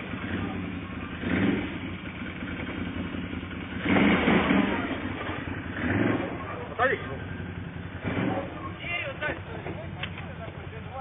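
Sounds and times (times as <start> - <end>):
off-road vehicle engine running: 0.0 - 11.0.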